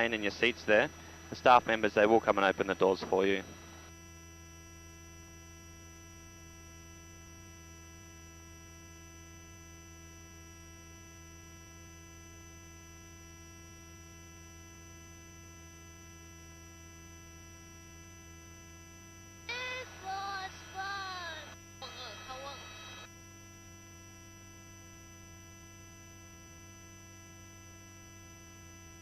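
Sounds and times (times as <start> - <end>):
electrical hum on intercom: 0.0 - 3.9, 19.5 - 23.1.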